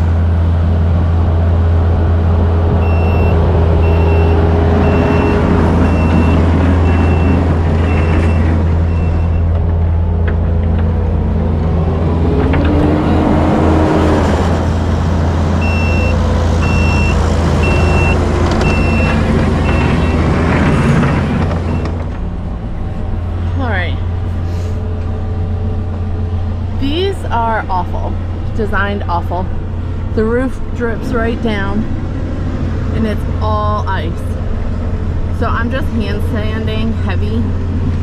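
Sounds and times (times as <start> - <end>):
truck engine droning: 0.0 - 38.0
backup alarm beeping: 2.8 - 9.5, 15.6 - 22.0.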